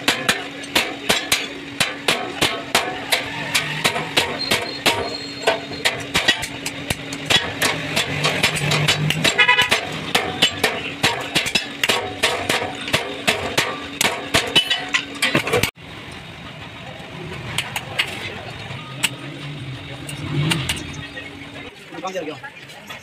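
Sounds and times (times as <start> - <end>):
sharp knocks on metal: 0.0 - 15.7.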